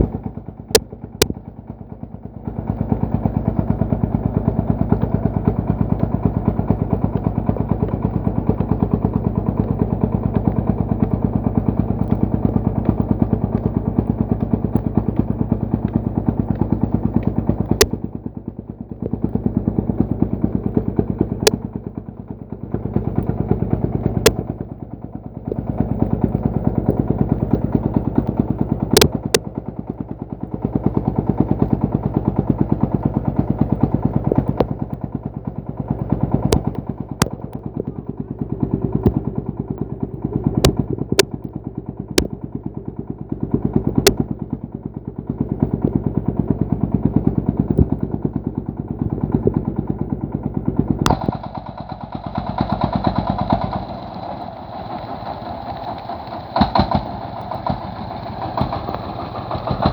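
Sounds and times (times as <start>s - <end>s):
diesel engine chugging: 0.0s - 59.9s
sharp clicks: 26.2s - 29.5s, 43.9s - 44.3s, 51.0s - 51.7s.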